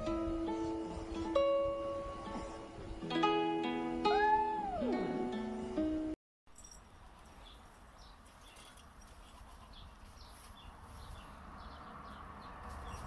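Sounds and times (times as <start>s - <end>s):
birds chirping: 7.3s - 13.0s.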